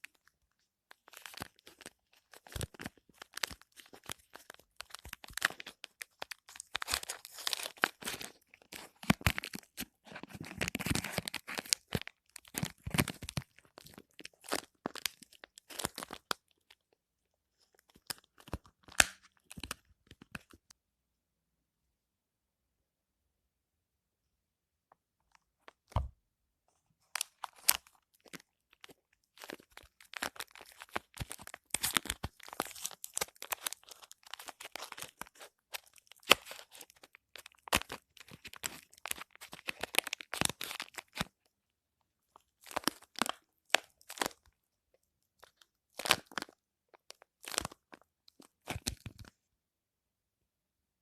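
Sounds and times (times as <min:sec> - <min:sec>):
wrapper tearing and crinkling: 0:01.0 - 0:16.8, 0:27.2 - 0:41.3, 0:42.6 - 0:44.4, 0:45.4 - 0:49.3.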